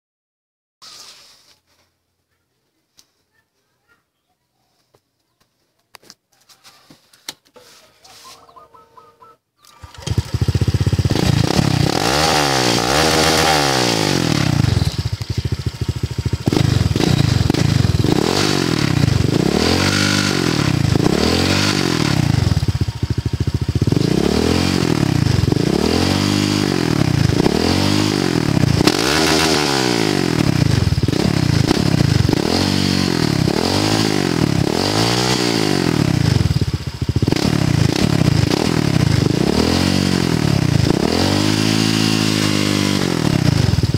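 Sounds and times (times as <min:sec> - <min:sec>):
scooter engine revving: 0:09.6 - 0:43.9.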